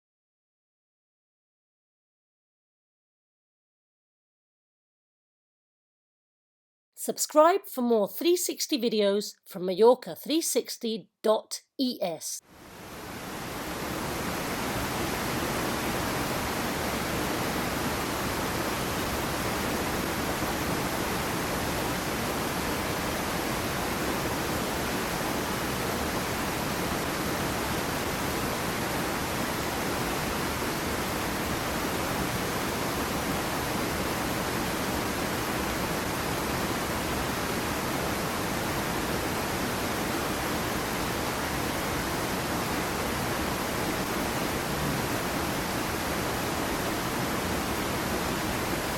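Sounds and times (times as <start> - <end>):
small waterfall rushing: 12.5 - 48.9.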